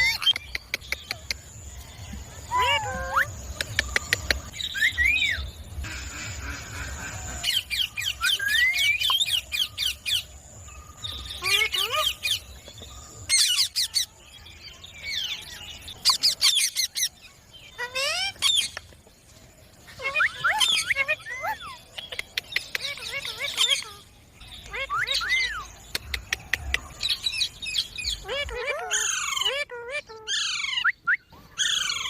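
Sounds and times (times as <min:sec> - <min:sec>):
parrot squawking and chirping: 0:00.0 - 0:01.2, 0:02.5 - 0:10.0, 0:11.1 - 0:12.5, 0:13.3 - 0:14.1, 0:17.7 - 0:18.8, 0:19.9 - 0:25.8, 0:26.7 - 0:32.0.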